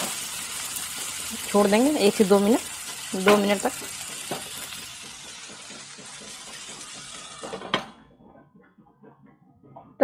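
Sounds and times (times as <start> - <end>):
onions sizzling in frying pan: 0.0 - 7.6.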